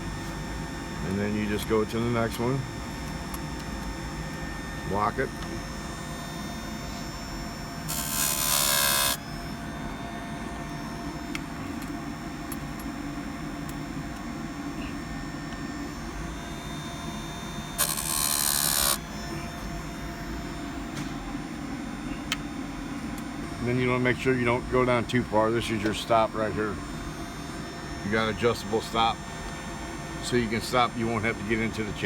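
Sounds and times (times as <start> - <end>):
steady low hum: 0.0 - 32.0
grinding wheel whining: 4.2 - 21.3.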